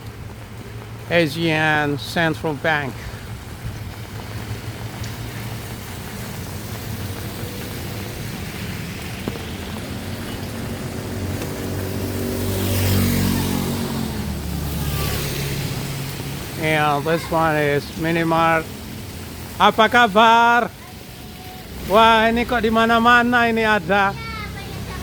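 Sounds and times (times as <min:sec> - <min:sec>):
street traffic noise: 0:00.0 - 0:25.0
vehicle engine passing close: 0:04.3 - 0:16.8.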